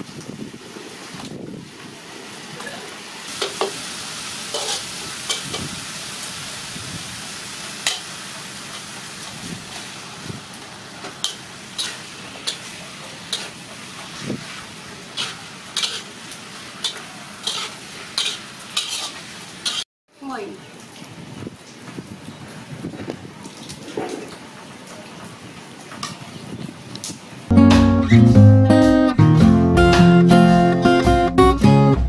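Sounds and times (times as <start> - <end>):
chicken sizzling in hot oil: 2.0 - 19.8
metal ladle clinking and scraping pan: 4.5 - 5.6, 11.2 - 12.7, 13.3 - 13.6, 15.1 - 16.1, 16.8 - 19.8.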